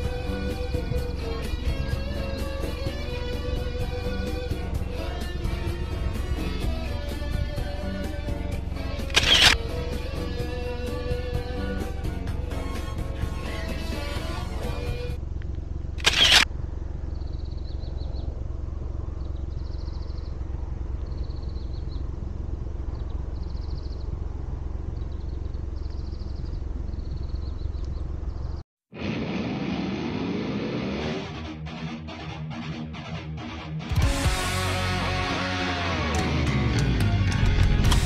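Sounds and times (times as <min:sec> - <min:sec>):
car engine idling: 0:00.0 - 0:28.6
high chirping of insects or birds: 0:16.9 - 0:28.6.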